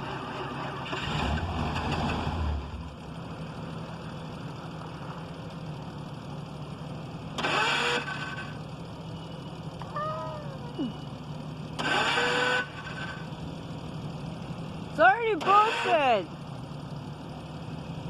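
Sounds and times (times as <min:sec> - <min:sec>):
car engine idling: 0:00.0 - 0:18.0
loud high-pitched engine burst: 0:07.4 - 0:08.6, 0:11.8 - 0:13.3, 0:15.4 - 0:16.2.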